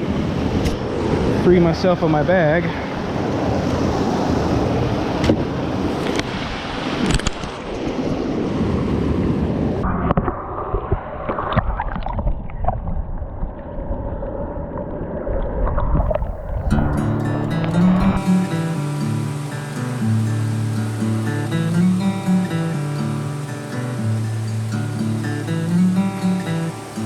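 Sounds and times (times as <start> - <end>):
wind buffeting the microphone: 0.0 - 27.0
creek water rushing: 16.0 - 27.0.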